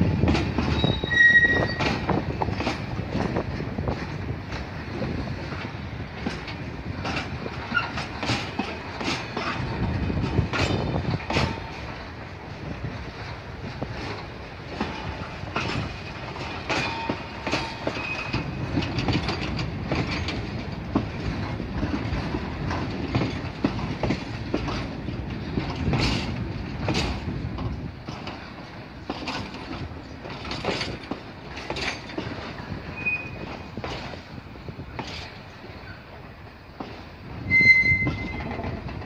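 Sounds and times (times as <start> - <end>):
train rumbling: 0.0 - 39.0
faint wheel squeals: 0.8 - 1.9, 32.9 - 33.5, 37.4 - 38.5.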